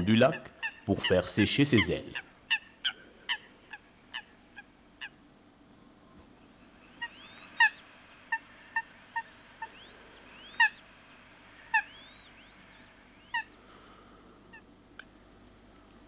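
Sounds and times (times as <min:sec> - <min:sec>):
faint whistled bird notes: 0:06.4 - 0:13.8
water birds sharp calls: 0:06.8 - 0:13.6.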